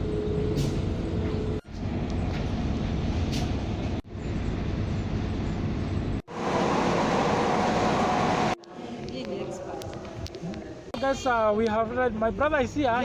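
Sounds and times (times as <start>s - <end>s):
diesel train rumbling: 0.0s - 8.6s.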